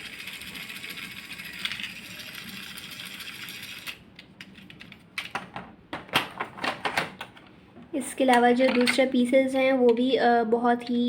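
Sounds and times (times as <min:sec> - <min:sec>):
toy train motor whirring: 0:00.0 - 0:04.0.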